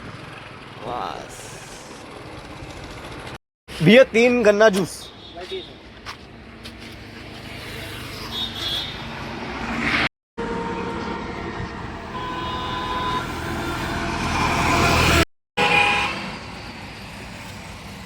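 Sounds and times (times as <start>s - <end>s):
engine running: 0.0s - 3.4s.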